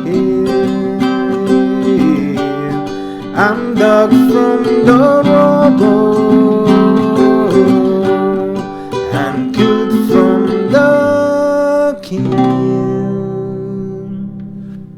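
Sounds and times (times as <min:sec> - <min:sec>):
acoustic guitar: 0:00.0 - 0:14.9.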